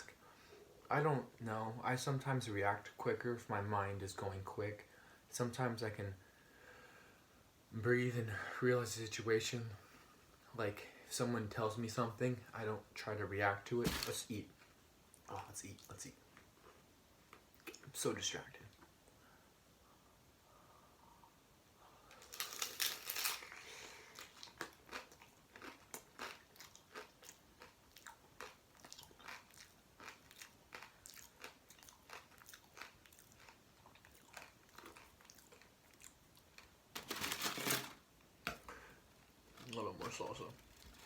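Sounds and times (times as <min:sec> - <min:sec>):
crunchy taco bite: 0:22.1 - 0:36.7
chewing with small crunches: 0:22.1 - 0:36.8.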